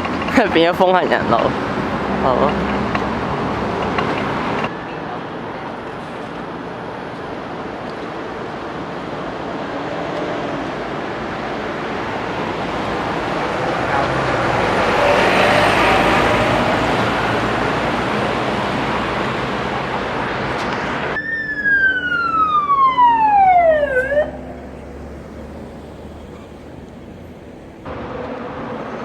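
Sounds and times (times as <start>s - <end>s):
vehicle passing: 0.4s - 4.7s, 12.1s - 27.9s
siren falling tone: 20.6s - 27.8s.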